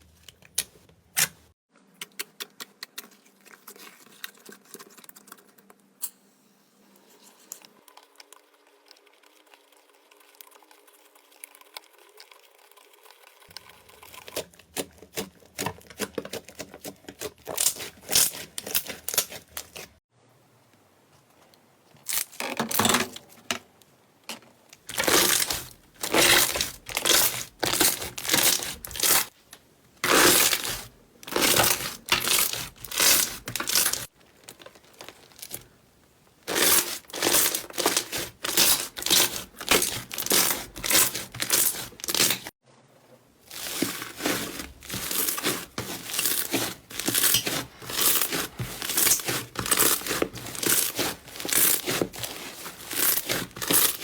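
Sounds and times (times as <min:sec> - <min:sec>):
slime squelching and crackling: 0:13.6 - 0:20.0, 0:24.8 - 0:42.6, 0:43.4 - 0:54.0.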